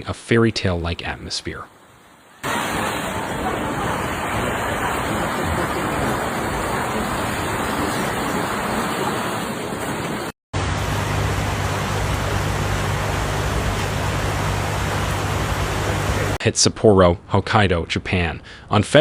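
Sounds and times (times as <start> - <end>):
outdoor rushing noise: 2.4 - 16.4
low steady hum: 10.6 - 16.4.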